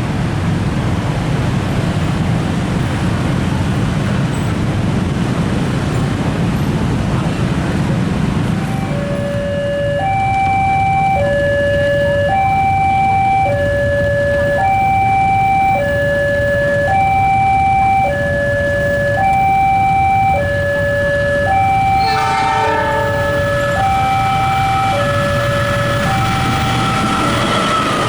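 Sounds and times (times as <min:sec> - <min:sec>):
two-tone crossing alarm: 0:08.4 - 0:28.0
horn-like chord: 0:21.5 - 0:25.6.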